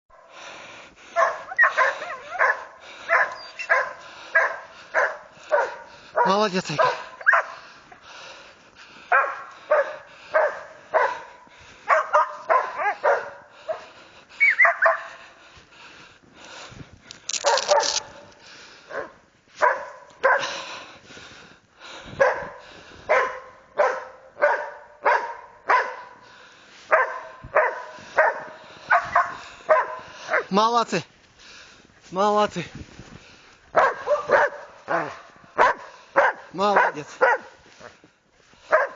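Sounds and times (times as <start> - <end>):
dogs barking: 1.0 - 8.0, 9.0 - 15.4, 17.4 - 20.7, 22.1 - 26.3, 26.9 - 30.6, 33.7 - 38.0, 38.6 - 38.9
dog whining yips: 3.3 - 3.8, 14.4 - 15.0.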